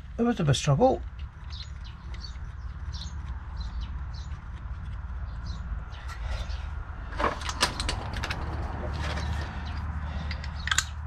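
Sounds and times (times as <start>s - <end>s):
small birds chirping: 0.0s - 7.1s, 8.9s - 11.0s
sharp clicks and knocks: 7.1s - 11.0s.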